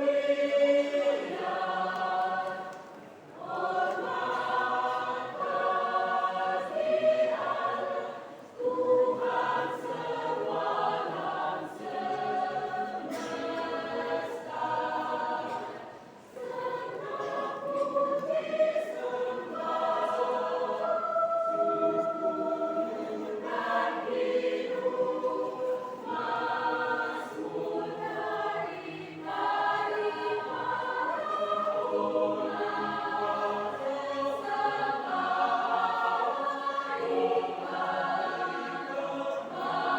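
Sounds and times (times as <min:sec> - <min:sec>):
church choir singing: 0:00.0 - 0:39.9.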